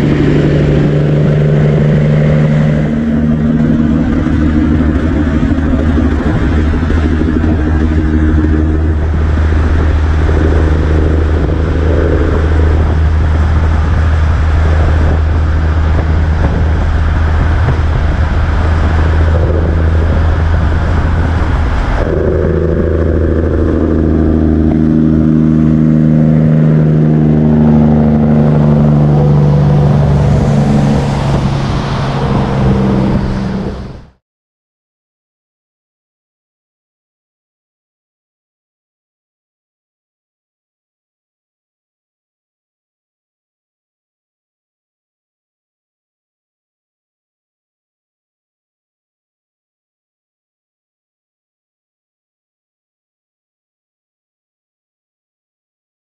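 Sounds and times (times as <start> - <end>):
truck diesel engine droning: 0.0 - 34.2.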